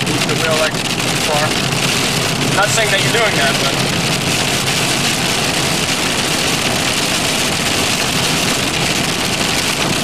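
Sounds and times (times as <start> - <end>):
car engine: 0.0 - 10.0
rain on car body: 0.0 - 10.0
tyres on wet road: 0.0 - 10.0.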